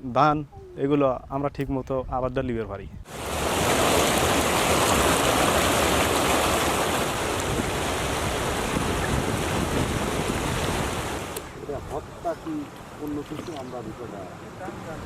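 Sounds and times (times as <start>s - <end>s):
flowing water rushing: 3.1s - 15.0s.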